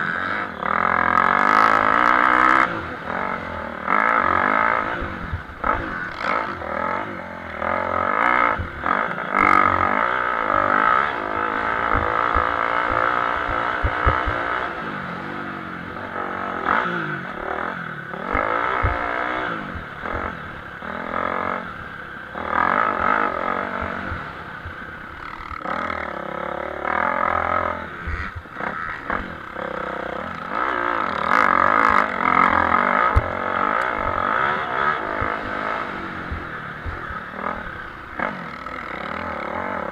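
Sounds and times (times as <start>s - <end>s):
motocross engines revving: 0.0s - 39.9s.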